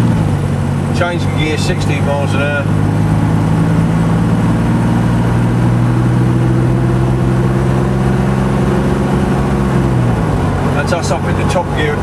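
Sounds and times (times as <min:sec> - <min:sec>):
car engine drone: 0:00.0 - 0:12.0
road noise: 0:00.0 - 0:12.0.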